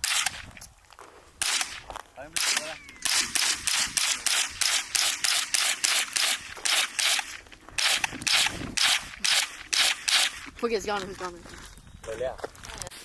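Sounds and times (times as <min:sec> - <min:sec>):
rapid gunfire: 0:00.0 - 0:00.4, 0:01.4 - 0:01.8, 0:02.4 - 0:10.5.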